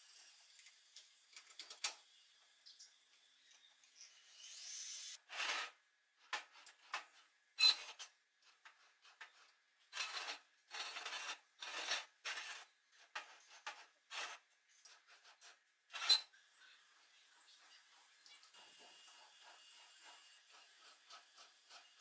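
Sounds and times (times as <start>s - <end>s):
scraping strokes on workpiece: 8.7s - 16.3s, 19.4s - 22.0s.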